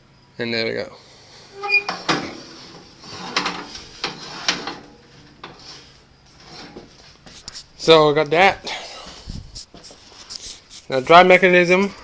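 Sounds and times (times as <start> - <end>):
gears squeaking and scraping: 1.5 - 4.8.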